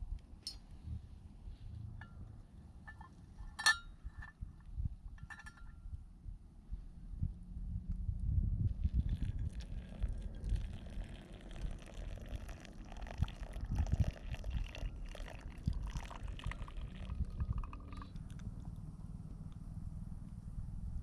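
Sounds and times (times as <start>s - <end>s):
low rumble: 5.9s - 11.9s
liquid pouring and trickling: 8.7s - 18.7s.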